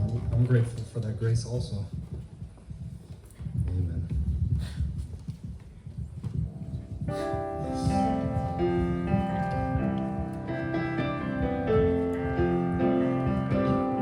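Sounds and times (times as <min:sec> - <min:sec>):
piano playing slow chords: 0:06.7 - 0:14.0.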